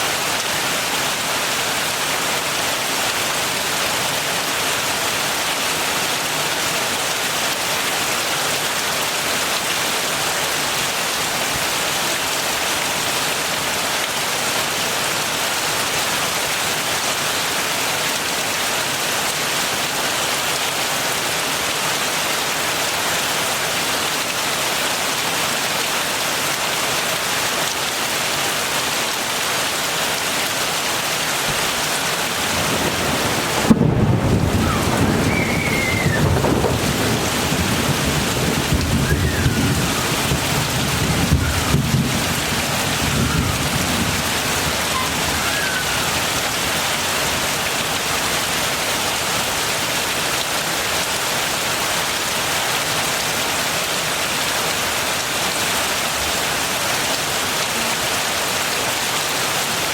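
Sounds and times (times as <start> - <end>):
heavy rain falling: 0.0 - 59.9
thunder cracking and rumbling: 32.3 - 46.0.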